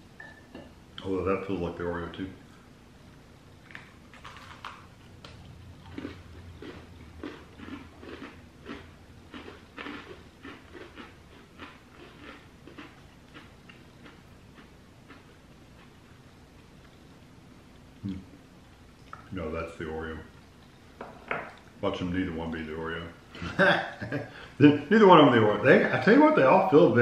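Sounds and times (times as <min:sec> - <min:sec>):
chewing crunchy cookies: 0:03.6 - 0:17.1.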